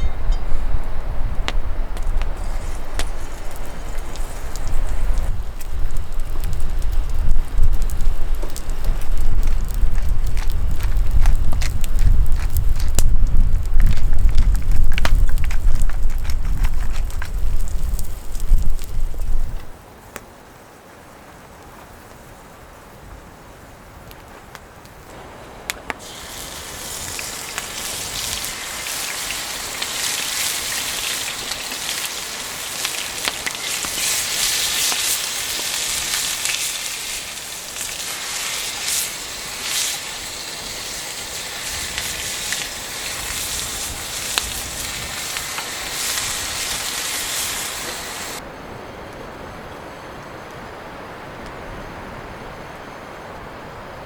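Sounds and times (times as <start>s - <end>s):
food sizzling in a pan: 2.4s - 11.3s, 26.0s - 48.4s.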